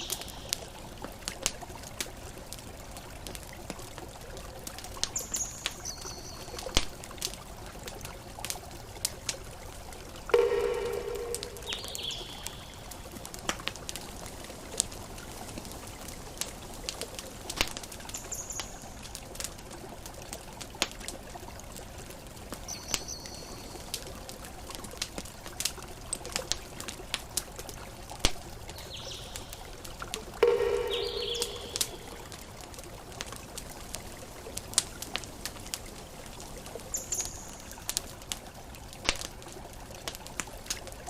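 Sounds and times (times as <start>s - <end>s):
campfire crackling: 0.0s - 41.0s
brief high chirps: 10.4s - 12.6s, 30.4s - 32.2s.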